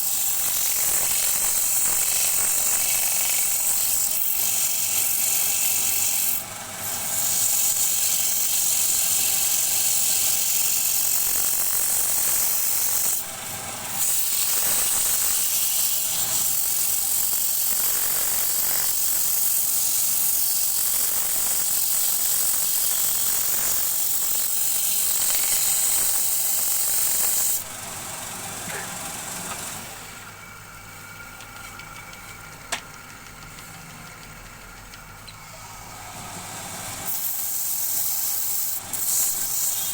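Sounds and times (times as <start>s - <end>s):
lathe tool shaving wood: 0.0s - 30.3s, 35.4s - 39.9s.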